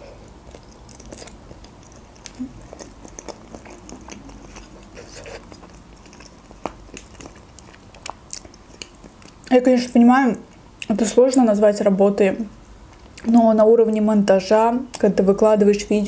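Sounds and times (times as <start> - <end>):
wet chewing mouth sounds: 0.0 - 9.5.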